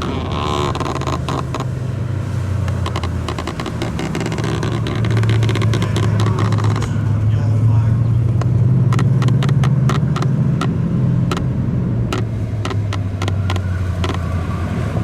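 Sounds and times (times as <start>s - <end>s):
car engine running: 0.0s - 15.0s
sharp clicks: 2.6s - 7.1s, 8.3s - 14.3s.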